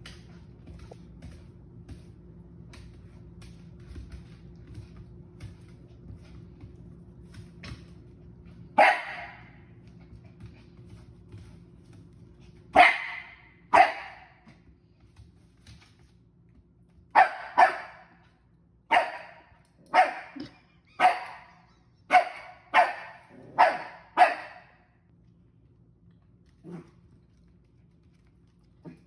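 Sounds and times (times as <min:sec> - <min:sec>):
small dog barking: 0:08.8 - 0:09.6, 0:12.8 - 0:14.3, 0:17.2 - 0:18.1, 0:18.9 - 0:21.5, 0:22.1 - 0:24.8.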